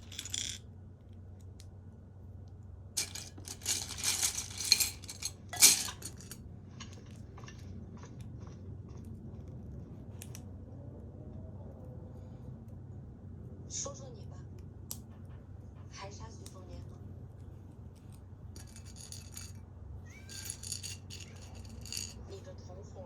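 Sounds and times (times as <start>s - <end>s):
small hard objects clattering: 3.0s - 7.6s, 18.6s - 19.6s, 20.2s - 22.2s.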